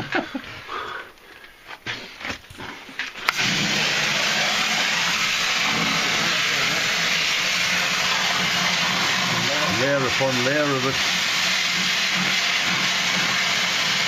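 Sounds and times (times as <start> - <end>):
pressure washer jet hissing: 3.2 - 14.0.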